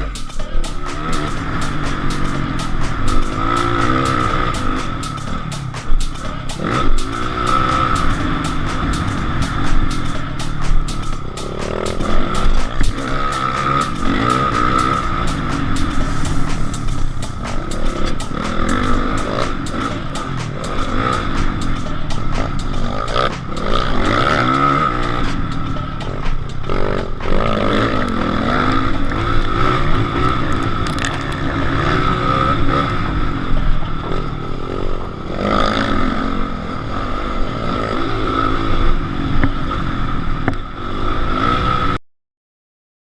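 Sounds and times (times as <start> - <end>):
motorcycle engines revving: 0.0 - 42.0.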